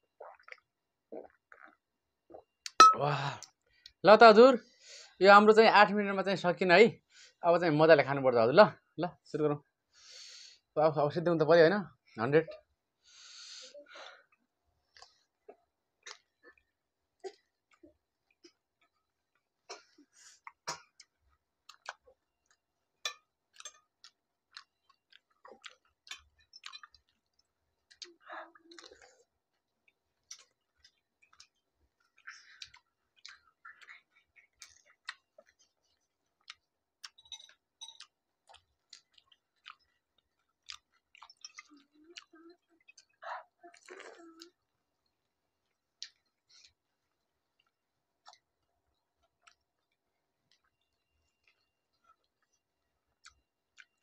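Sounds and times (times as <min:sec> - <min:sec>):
wet chewing: 0:20.4 - 0:44.6, 0:45.6 - 0:54.0.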